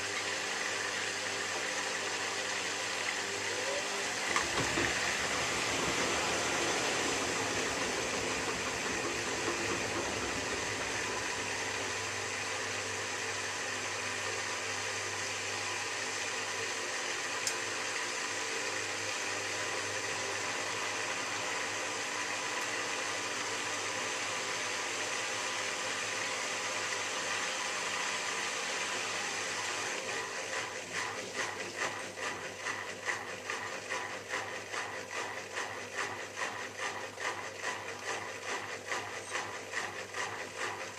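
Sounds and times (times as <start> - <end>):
washing machine filling with water: 0.0 - 40.9
washing machine drum turning: 4.2 - 12.0.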